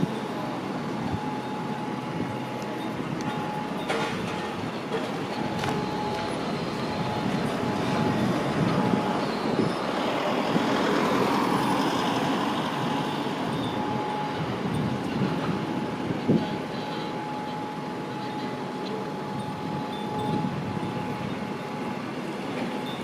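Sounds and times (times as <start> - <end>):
street traffic rumble: 0.0 - 23.0
thin steady tone: 11.4 - 23.0.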